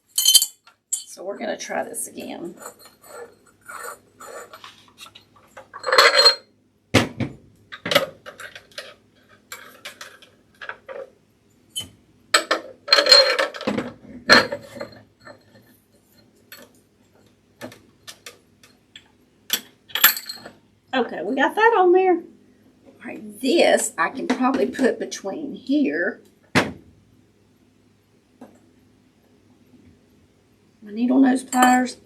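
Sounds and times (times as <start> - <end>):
metal clinking against glass jar: 0.0 - 1.2, 5.7 - 6.5, 11.8 - 13.6, 19.6 - 20.5, 31.5 - 31.8.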